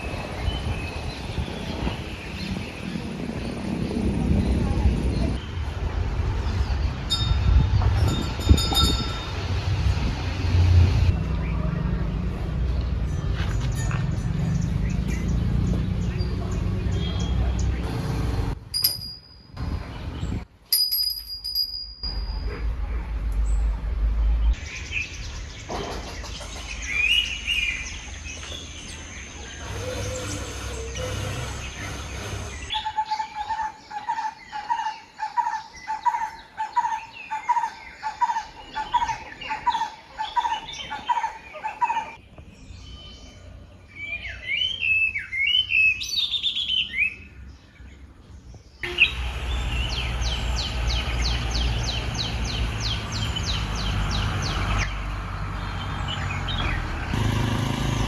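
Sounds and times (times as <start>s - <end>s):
birds chirping: 0.0s - 58.0s
low rumble: 22.0s - 25.6s.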